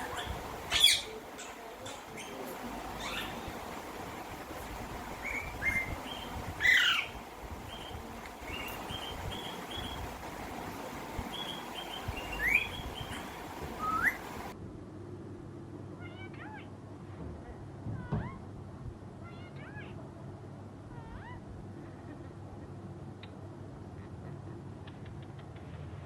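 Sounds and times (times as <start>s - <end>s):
birds chirping: 0.0s - 14.6s
steady background hiss: 0.0s - 16.0s.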